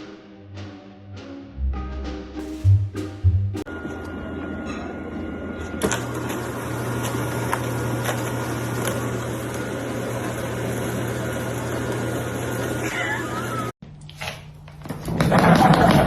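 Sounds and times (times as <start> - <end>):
loud low hum: 1.6 - 6.1.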